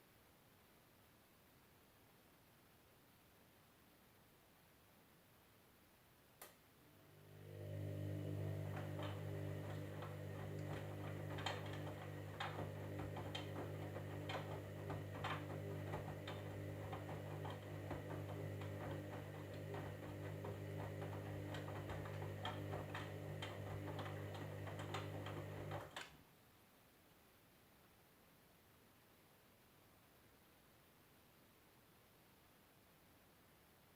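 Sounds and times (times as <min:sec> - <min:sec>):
washing machine humming: 0:06.8 - 0:26.1.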